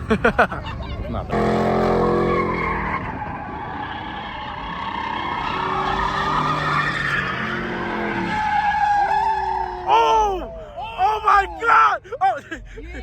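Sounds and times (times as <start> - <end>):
tires squealing on pavement: 1.2 - 12.0
engine revving high: 1.3 - 9.9.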